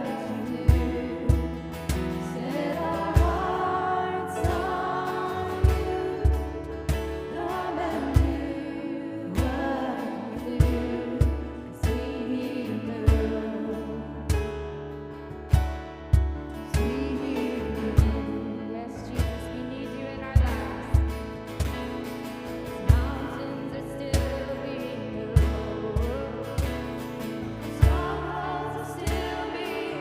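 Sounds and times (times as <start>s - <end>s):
worship band slow song: 0.0s - 30.0s
low drum beat: 0.5s - 3.8s, 4.4s - 8.7s, 10.5s - 12.4s.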